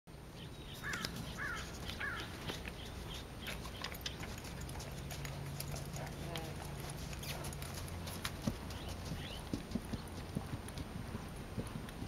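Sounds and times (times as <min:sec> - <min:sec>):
low steady hum: 0:00.1 - 0:12.0
bird calling: 0:00.4 - 0:04.4, 0:08.6 - 0:10.1
bird ticks: 0:00.8 - 0:06.4.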